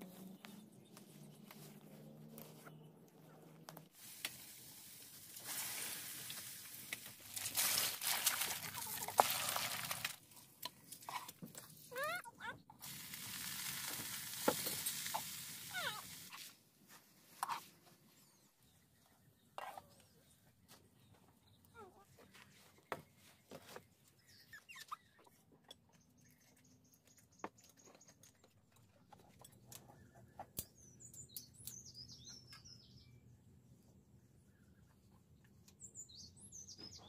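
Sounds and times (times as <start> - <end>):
food sizzling in hot oil: 12.8 - 16.3.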